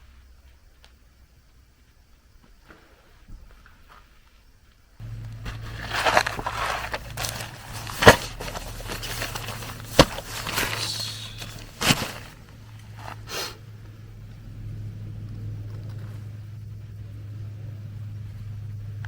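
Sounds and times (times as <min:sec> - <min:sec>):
rustling and handling noises: 0:05.0 - 0:13.6
steady low hum: 0:05.0 - 0:19.0.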